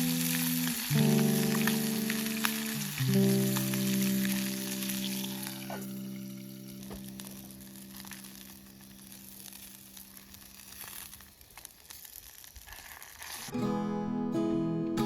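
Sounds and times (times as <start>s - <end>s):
guitar music: 0.0s - 9.6s, 13.5s - 15.0s
wood fire crackling and hissing: 0.0s - 13.7s.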